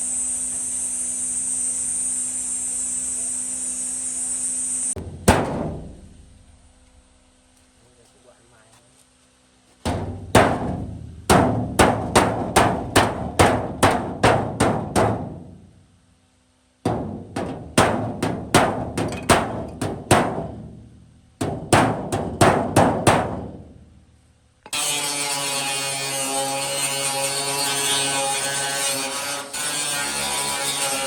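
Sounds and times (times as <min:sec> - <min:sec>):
hammer striking sheet metal: 0:05.0 - 0:06.4, 0:09.9 - 0:15.6, 0:16.8 - 0:20.8, 0:21.4 - 0:23.7.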